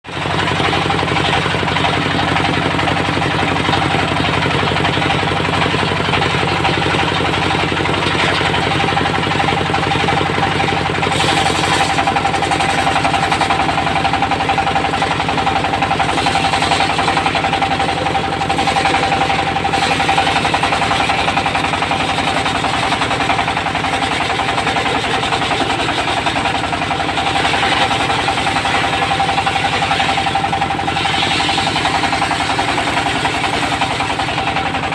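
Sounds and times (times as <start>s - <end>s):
diesel engine beat: 0.0s - 34.9s
circular saw sawing wood: 5.0s - 34.9s.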